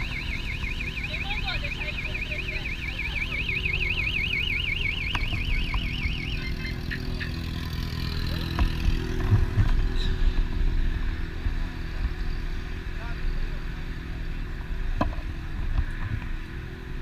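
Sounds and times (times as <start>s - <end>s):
vehicle alarm warbling: 0.0s - 7.8s
motorcycle engine idling: 0.0s - 15.6s.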